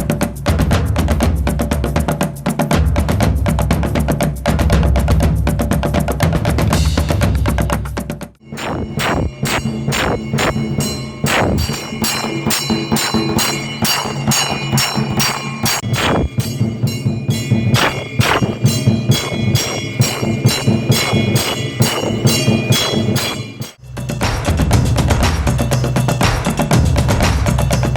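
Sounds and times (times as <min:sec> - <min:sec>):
machine beating a drum: 0:00.0 - 0:27.9
bell ringing: 0:08.4 - 0:24.2.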